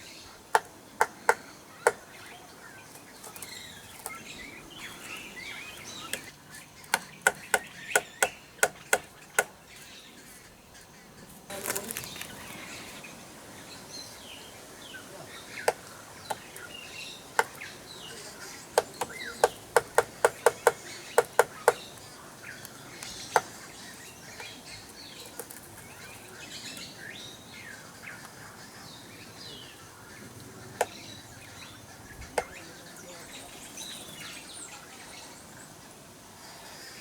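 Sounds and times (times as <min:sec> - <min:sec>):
birds chirping faintly: 0:00.0 - 0:37.0
woodpecker knocking on mirror: 0:18.8 - 0:21.9.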